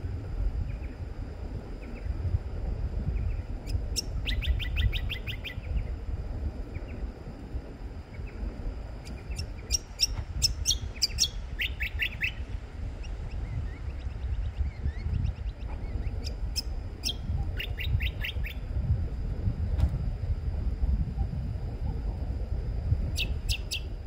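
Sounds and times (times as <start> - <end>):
low rumble: 0.0 - 24.0
bird high chirping: 3.2 - 5.9, 9.0 - 18.6, 23.1 - 24.0.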